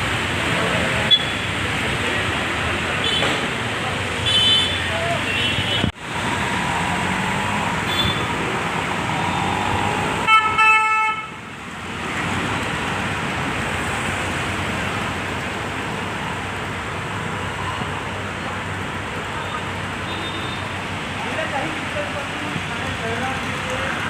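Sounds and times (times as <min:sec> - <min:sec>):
road traffic noise: 0:00.0 - 0:24.0
vehicle horn tooting: 0:04.2 - 0:05.9, 0:07.9 - 0:08.3, 0:10.2 - 0:11.4, 0:20.1 - 0:20.7.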